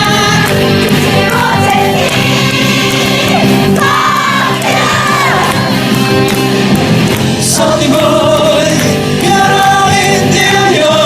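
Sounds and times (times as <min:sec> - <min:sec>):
voices singing and calling out: 0:00.0 - 0:05.9, 0:07.4 - 0:11.0
band accompaniment: 0:00.0 - 0:11.0.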